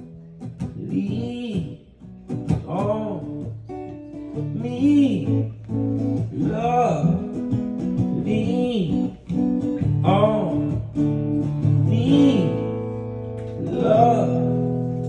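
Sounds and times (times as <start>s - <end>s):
acoustic guitar chords: 0.0s - 15.0s
person singing wordless notes: 11.7s - 13.0s, 13.6s - 14.8s.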